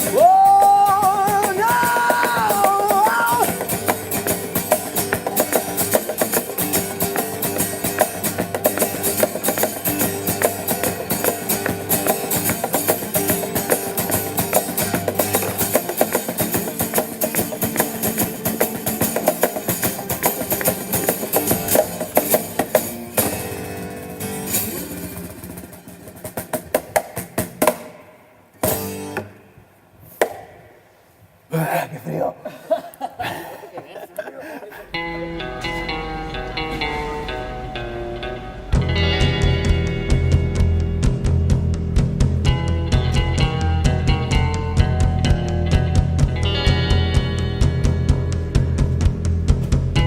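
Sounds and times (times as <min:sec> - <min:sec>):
rock band playing: 0:00.0 - 0:27.6, 0:35.0 - 0:50.0.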